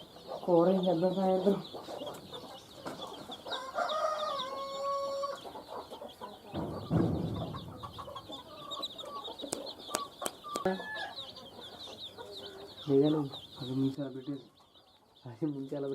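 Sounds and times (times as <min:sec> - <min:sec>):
baby chicks peeping: 0:00.0 - 0:15.9
dull low thud: 0:06.6 - 0:08.3.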